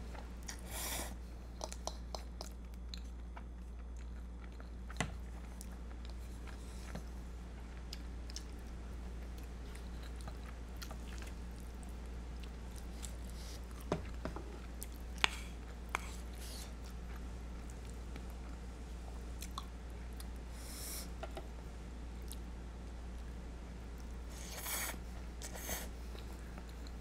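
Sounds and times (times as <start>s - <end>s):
steady low hum: 0.0s - 27.0s
close chewing of pasta: 1.5s - 18.6s.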